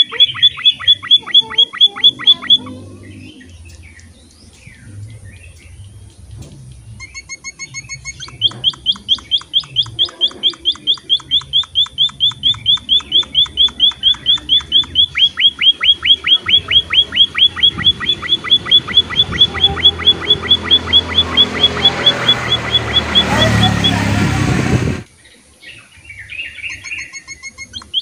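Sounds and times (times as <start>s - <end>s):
bird sharp repeated chirps: 0.0s - 25.0s, 26.1s - 28.0s.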